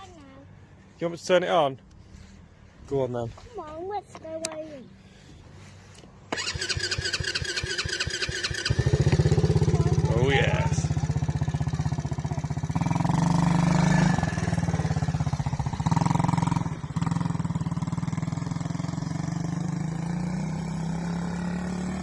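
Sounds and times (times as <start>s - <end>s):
quad bike engine running: 6.3s - 22.0s.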